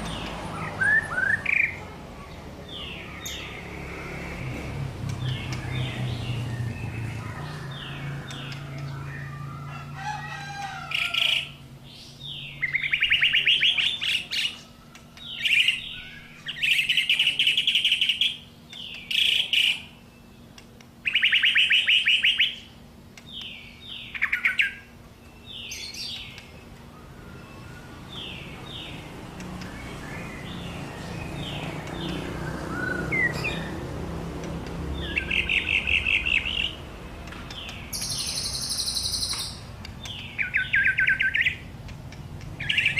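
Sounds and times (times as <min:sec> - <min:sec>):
bird singing trills and whistles: 0:00.1 - 0:01.8, 0:11.0 - 0:29.0, 0:29.6 - 0:33.8, 0:35.0 - 0:42.9.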